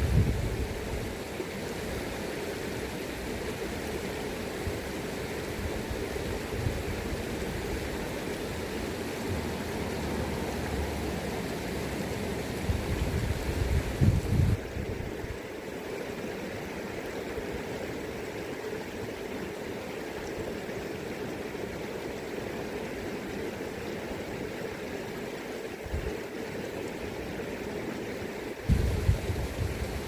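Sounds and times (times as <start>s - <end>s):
wind rumble on microphone: 0.0s - 1.2s, 5.6s - 8.0s, 9.2s - 15.4s, 25.8s - 26.2s, 28.7s - 30.0s
river current rushing: 0.0s - 30.0s.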